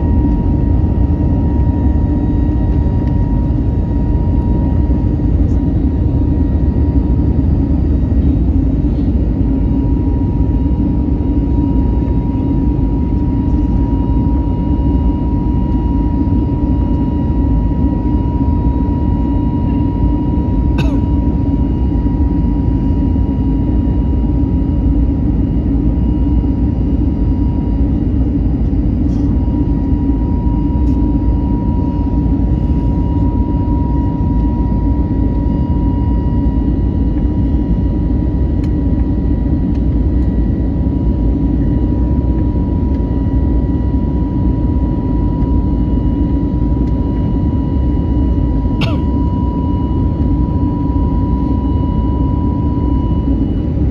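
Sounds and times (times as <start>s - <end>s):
airliner cabin engine rumble: 0.0s - 53.9s.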